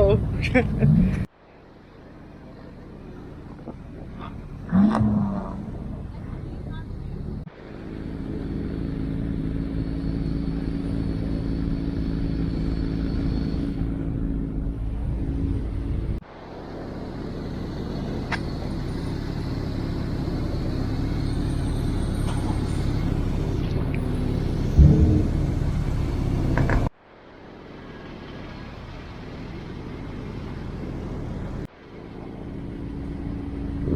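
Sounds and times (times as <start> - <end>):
car engine and road rumble: 0.0 - 33.9.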